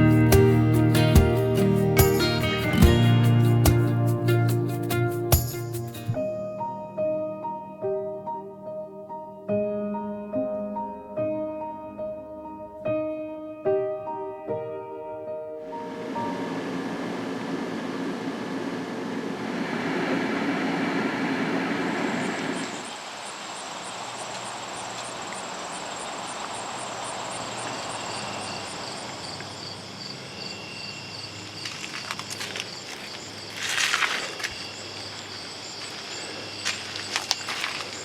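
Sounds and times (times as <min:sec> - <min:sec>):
music: 0:00.0 - 0:16.3
insects chirping: 0:15.8 - 0:38.0
loud rustle: 0:31.6 - 0:34.8, 0:35.8 - 0:38.0.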